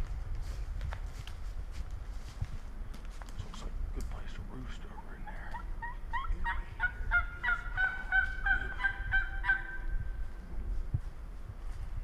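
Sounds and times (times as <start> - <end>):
turkey hen yelps: 5.2 - 9.9.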